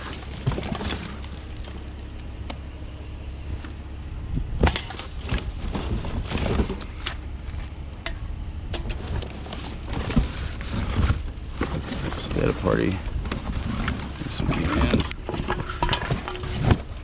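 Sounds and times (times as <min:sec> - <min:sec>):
steady low rumble: 0:00.0 - 0:17.0
aluminium cans clattering: 0:13.4 - 0:17.0.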